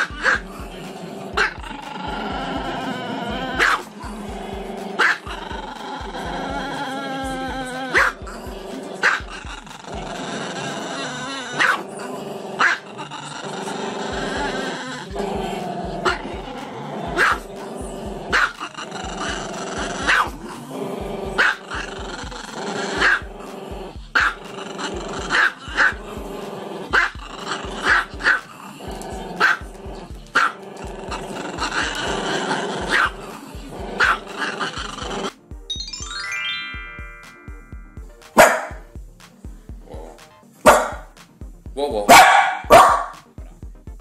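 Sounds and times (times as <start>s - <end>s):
dog growling howl: 1.2s - 35.3s
dog yipping: 38.4s - 38.7s, 40.7s - 41.0s, 42.1s - 43.2s.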